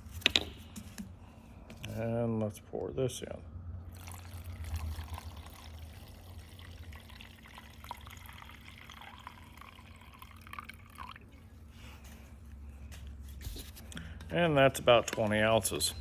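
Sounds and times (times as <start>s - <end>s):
low steady hum: 0.0s - 16.0s
liquid trickling and dripping: 3.9s - 11.6s.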